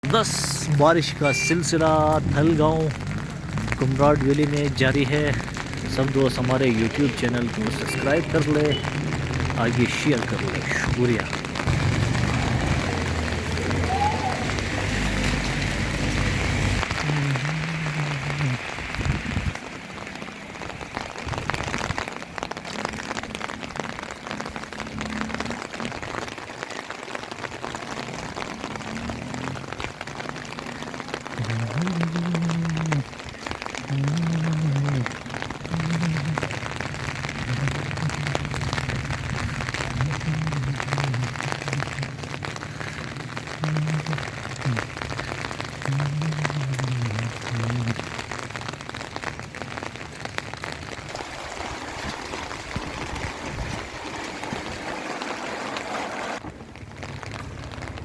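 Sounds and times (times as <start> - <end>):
heavy rain pattering: 0.0 - 58.0.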